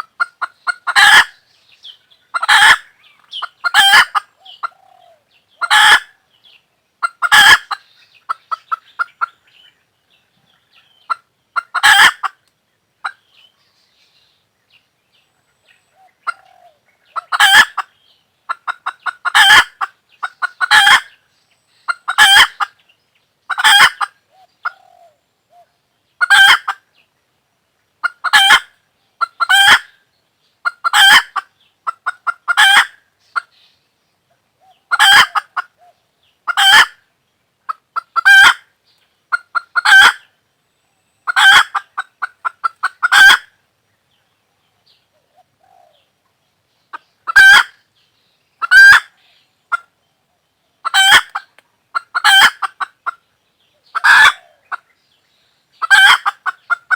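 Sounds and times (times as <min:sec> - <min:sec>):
hen cackling: 0:00.0 - 0:01.4, 0:02.3 - 0:06.2, 0:07.0 - 0:09.4, 0:11.1 - 0:12.4, 0:15.9 - 0:21.2, 0:21.9 - 0:22.8, 0:23.5 - 0:26.8, 0:28.0 - 0:30.0, 0:30.6 - 0:33.5, 0:34.6 - 0:37.0, 0:37.7 - 0:38.7, 0:39.3 - 0:40.3, 0:41.2 - 0:43.6, 0:46.9 - 0:47.8, 0:48.6 - 0:49.9, 0:50.8 - 0:53.2, 0:53.9 - 0:54.9, 0:55.8 - 0:56.9.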